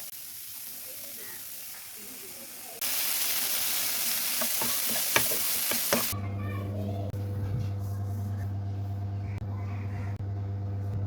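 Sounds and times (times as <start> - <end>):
hot oil sizzling: 0.0 - 6.2
steady low hum: 6.1 - 11.0.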